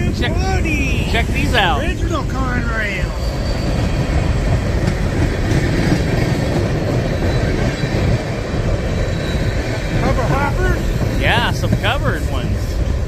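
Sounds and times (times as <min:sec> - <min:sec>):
freight train wheels rumbling on rails: 0:00.0 - 0:13.0.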